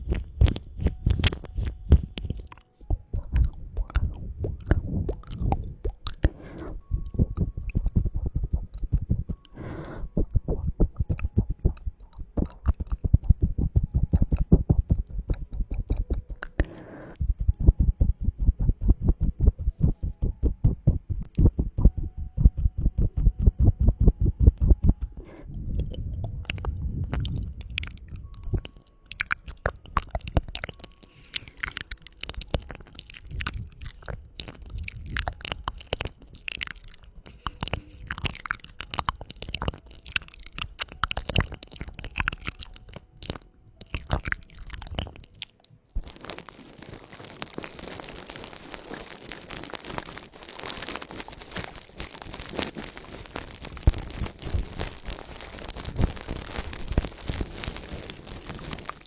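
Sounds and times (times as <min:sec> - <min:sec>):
wet tongue clicks: 0:00.0 - 0:16.9, 0:20.4 - 0:59.0
scratchy rustle on microphone: 0:46.1 - 0:59.0.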